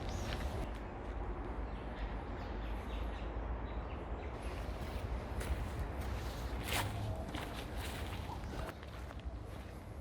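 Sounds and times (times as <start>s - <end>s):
footsteps on forest path: 0.0s - 0.9s, 4.4s - 10.0s.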